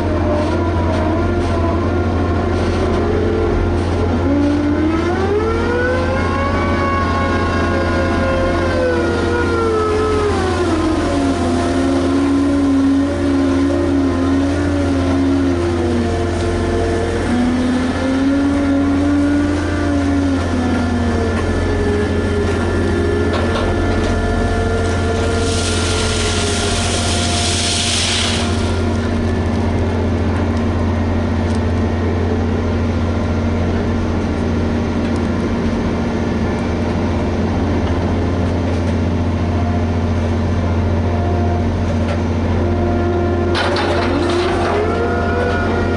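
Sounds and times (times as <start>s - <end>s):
excavator machinery humming: 0.0s - 45.9s
hiss: 25.3s - 28.9s.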